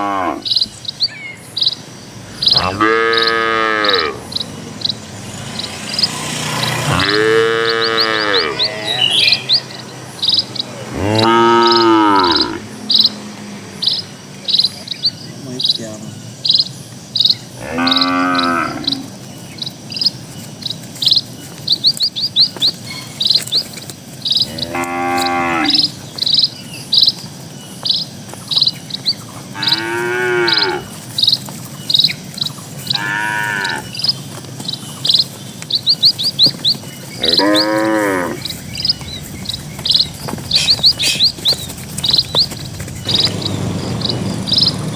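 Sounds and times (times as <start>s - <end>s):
cattle mooing: 0.0s - 0.5s, 2.3s - 4.4s, 5.2s - 9.6s, 10.8s - 12.7s, 17.6s - 19.2s, 24.4s - 26.0s, 29.5s - 31.0s, 32.9s - 34.0s, 37.2s - 44.9s
bird chirping: 0.0s - 44.9s.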